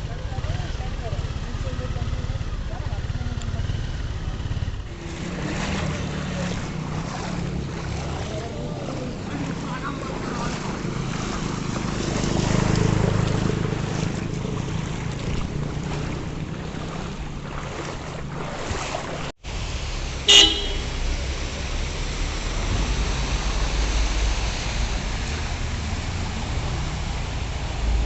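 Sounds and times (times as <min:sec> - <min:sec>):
road traffic rumbling: 0:00.0 - 0:28.0
vehicle horn toot: 0:20.3 - 0:21.0.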